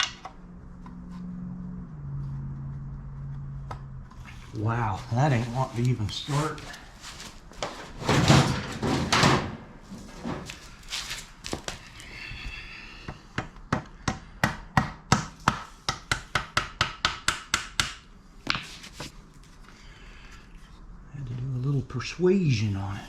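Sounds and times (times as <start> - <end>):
metal scrape: 5.3 - 11.1.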